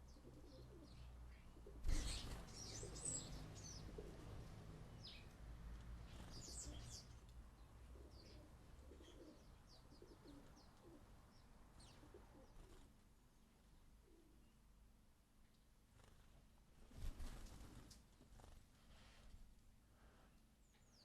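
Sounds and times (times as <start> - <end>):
sparrows chirping: 0.0 - 5.4, 6.0 - 12.8, 20.6 - 21.0.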